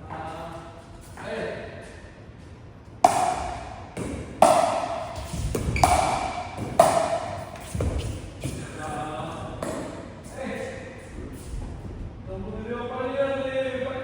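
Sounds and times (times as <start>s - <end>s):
paddles hitting plastic ball: 3.0s - 8.7s.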